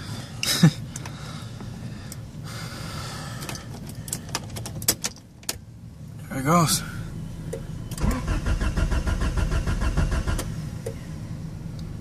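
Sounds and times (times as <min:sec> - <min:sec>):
car engine starter cranking: 0:07.9 - 0:10.6.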